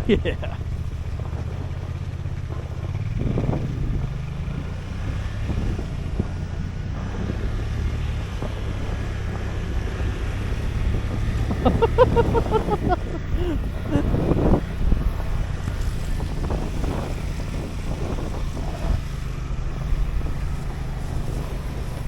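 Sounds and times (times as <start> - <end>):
utility vehicle engine running: 0.0 - 22.0
person speaking: 11.7 - 14.1.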